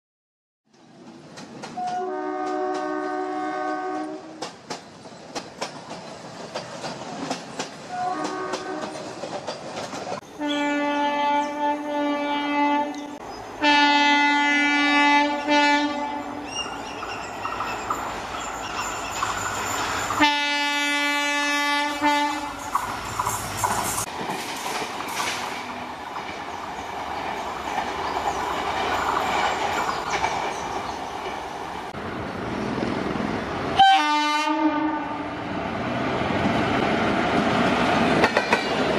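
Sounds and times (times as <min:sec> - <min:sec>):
wheels clacking over rail joints: 0:00.7 - 0:10.4, 0:16.4 - 0:20.4, 0:22.1 - 0:32.0, 0:35.9 - 0:38.9
train rumbling past: 0:00.7 - 0:38.9
train horn blasts: 0:01.8 - 0:04.4, 0:07.9 - 0:09.1, 0:10.3 - 0:16.5, 0:20.2 - 0:22.7, 0:33.8 - 0:35.4.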